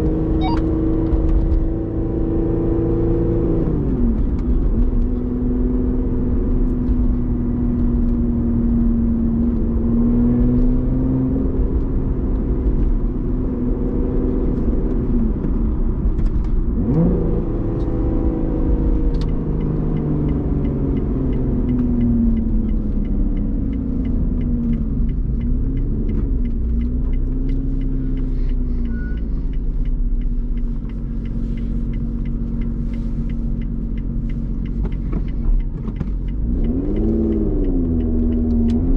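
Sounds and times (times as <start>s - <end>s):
car engine revving while driving: 0.0s - 38.9s.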